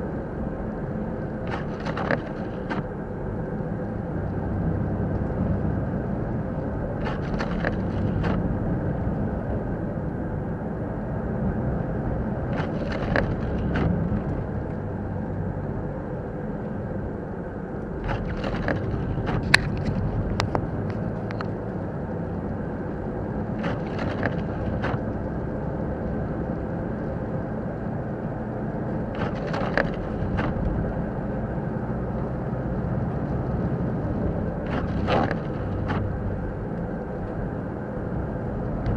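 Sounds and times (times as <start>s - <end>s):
car engine and tyres rumbling: 0.0s - 38.9s
rustling and clicks: 1.5s - 2.9s, 7.0s - 8.4s, 12.5s - 14.8s, 18.0s - 21.6s, 23.6s - 25.2s, 29.1s - 30.9s, 34.6s - 36.2s.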